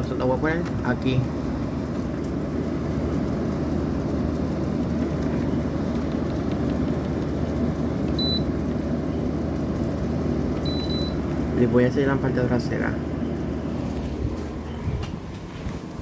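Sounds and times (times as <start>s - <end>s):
air conditioner humming: 0.0s - 16.0s
short high beep: 8.2s - 8.5s, 10.6s - 11.2s.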